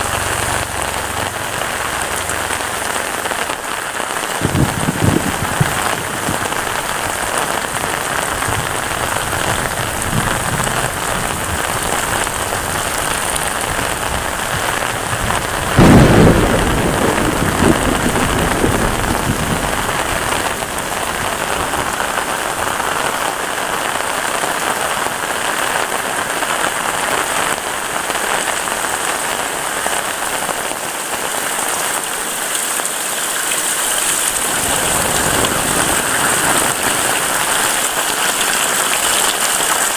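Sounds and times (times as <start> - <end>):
heavy rain falling: 0.0 - 39.9
loud low rumble: 15.7 - 22.1.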